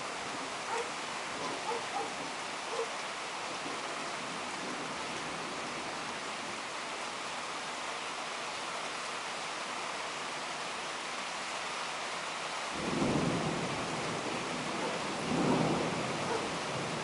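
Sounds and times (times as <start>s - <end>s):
heavy rain hissing: 0.0s - 17.0s
thunder rumbling: 12.8s - 17.0s.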